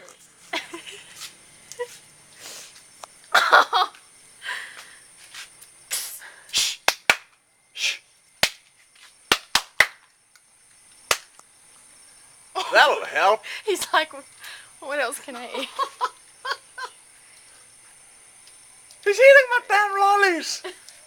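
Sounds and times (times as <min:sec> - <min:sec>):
sharp clicks and snaps: 0:18.4 - 0:19.1.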